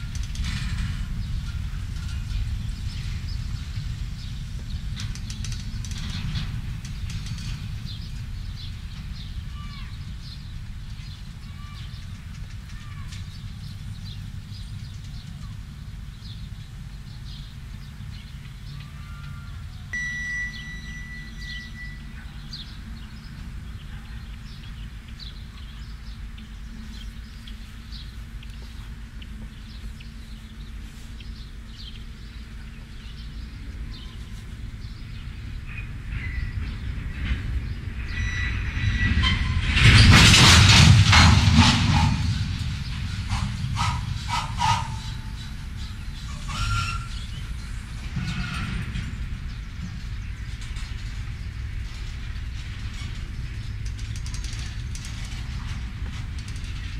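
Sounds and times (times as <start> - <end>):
clatter of rolling cars: 0.0 - 56.9
freight train rumbling: 0.0 - 56.9
high-pitched squeal: 19.1 - 22.6, 37.9 - 49.1.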